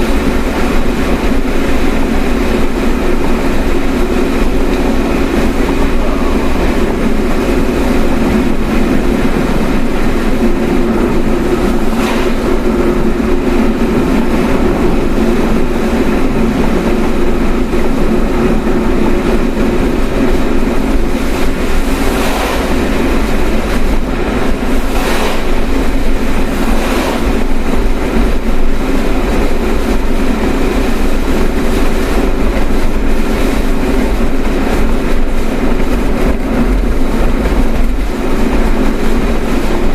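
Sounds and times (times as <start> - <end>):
car road and engine rumble: 0.0 - 39.9
brief whooshes: 11.5 - 13.1, 22.1 - 22.8, 24.9 - 25.7.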